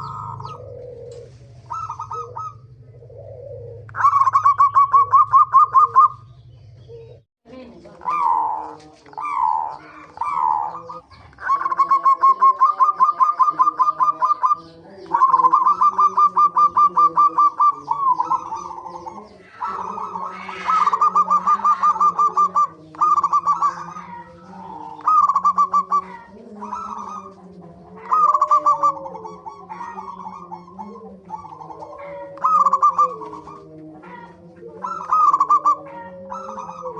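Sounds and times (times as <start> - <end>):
doves cooing: 0.0 - 36.9.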